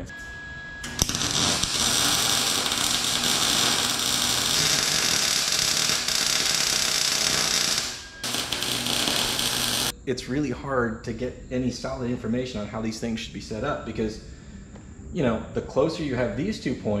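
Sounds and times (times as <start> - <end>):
power tool hissing: 0.9 - 9.9.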